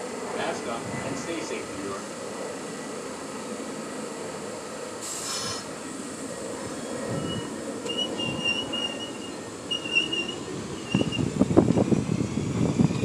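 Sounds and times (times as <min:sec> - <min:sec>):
subway train rumble: 0:00.0 - 0:13.0
train wheels squealing on rails: 0:05.0 - 0:13.0.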